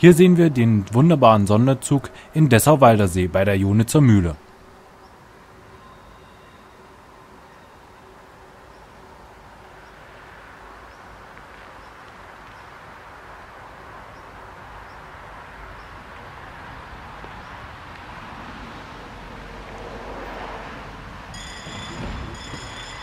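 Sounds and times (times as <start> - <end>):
diesel railcar rumbling: 18.7 - 23.0.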